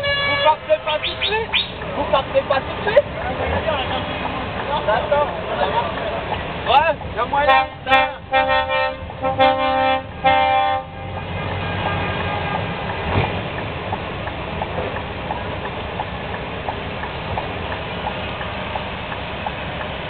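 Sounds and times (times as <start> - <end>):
truck air horn blasts: 0.0 - 1.2, 7.4 - 12.7
heavy truck engines rumbling: 0.0 - 20.0.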